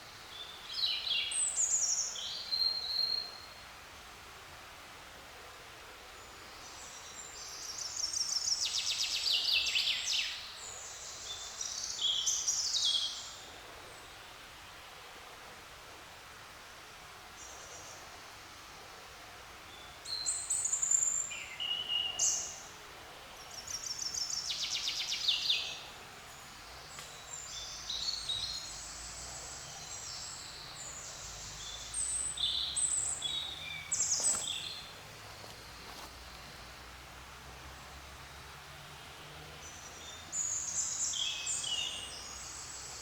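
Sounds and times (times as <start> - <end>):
forest ambience hiss: 0.0 - 43.0
songbirds singing: 19.6 - 37.0, 37.6 - 43.0.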